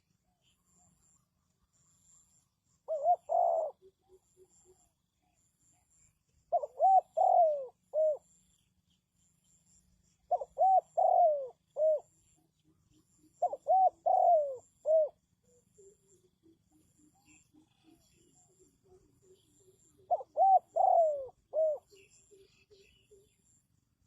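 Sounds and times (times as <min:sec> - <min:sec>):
dove cooing: 0:02.9 - 0:04.8, 0:06.5 - 0:08.3, 0:10.3 - 0:12.5, 0:13.4 - 0:23.4.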